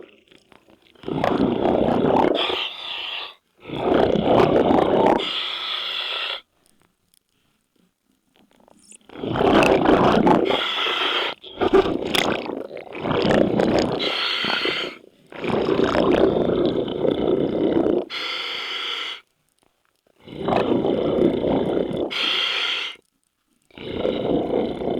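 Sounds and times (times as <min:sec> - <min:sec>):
exhaled bubbles underwater: 0:01.0 - 0:02.7, 0:03.6 - 0:05.3, 0:09.0 - 0:18.1, 0:20.2 - 0:22.2, 0:23.8 - 0:24.9.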